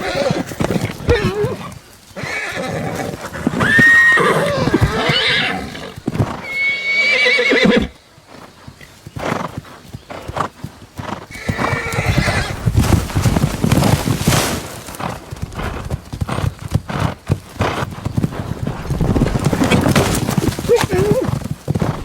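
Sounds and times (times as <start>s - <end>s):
horses squealing and neighing: 0.0s - 22.0s
hoof stamps and thuds: 6.0s - 6.4s, 11.5s - 22.0s.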